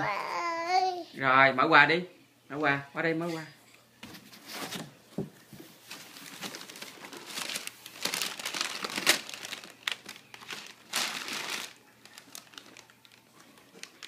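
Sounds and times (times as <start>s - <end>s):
wrapping paper crinkling and tearing: 5.8s - 14.0s
paper ripping: 6.2s - 14.0s.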